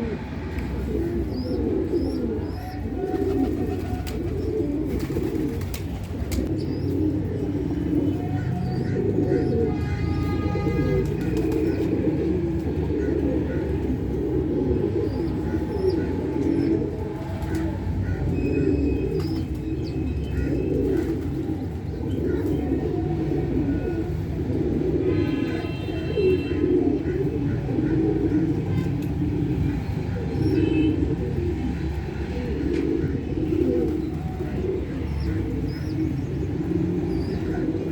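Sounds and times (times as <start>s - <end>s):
pigeons cooing: 0.0s - 37.9s
small birds chirping: 1.0s - 12.0s, 15.0s - 22.8s, 28.7s - 37.9s.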